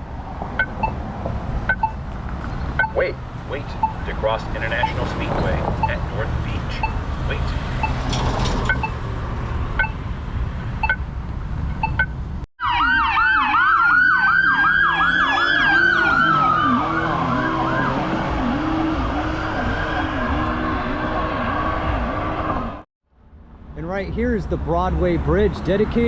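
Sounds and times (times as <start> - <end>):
pedestrian signal ticking: 0.5 - 2.1, 2.7 - 5.2, 5.8 - 8.1, 8.7 - 9.0, 9.8 - 10.1, 10.8 - 12.4
lower siren sweeping: 12.6 - 22.8
siren yelping and wailing: 12.6 - 22.8.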